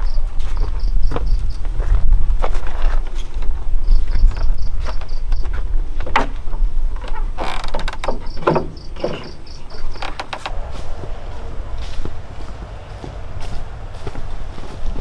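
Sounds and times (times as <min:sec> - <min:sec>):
insect chirping: 0:07.4 - 0:15.0
scraping rustling strokes: 0:10.2 - 0:15.0
low rumble: 0:10.4 - 0:15.0.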